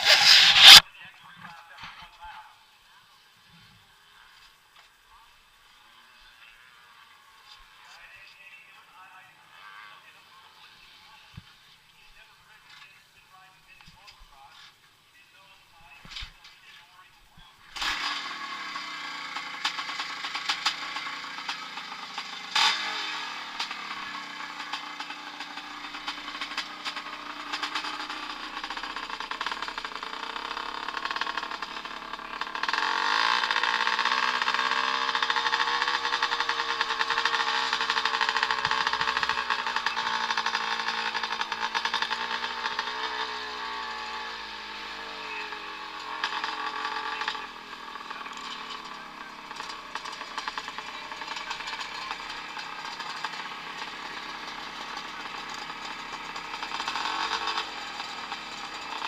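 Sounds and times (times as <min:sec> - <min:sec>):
motorcycle engines revving: 0:00.0 - 0:00.9, 0:17.7 - 0:59.0.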